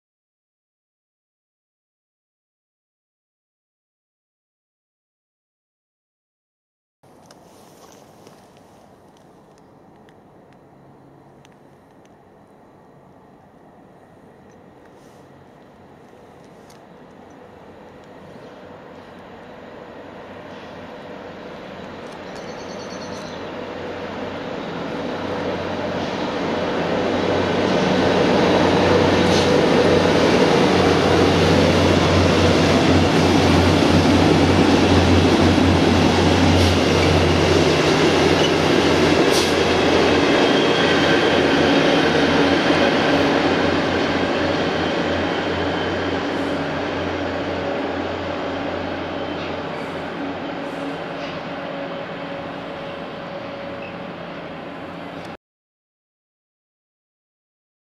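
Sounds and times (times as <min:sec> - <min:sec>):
diesel engines humming: 0:07.1 - 0:55.4
train wheels rumbling on rails: 0:14.5 - 0:55.4.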